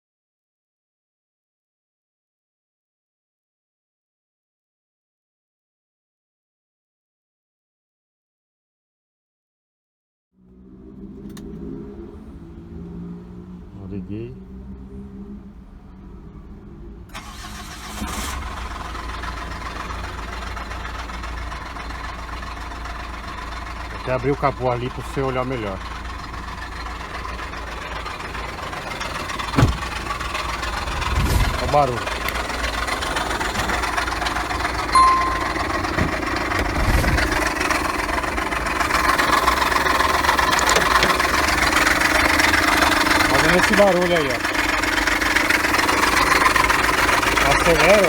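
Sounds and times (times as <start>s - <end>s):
suv engine idling: 15.4s - 48.0s
belt drive rattling and knocking: 29.0s - 30.2s
high-pitched chirp: 35.0s - 35.8s.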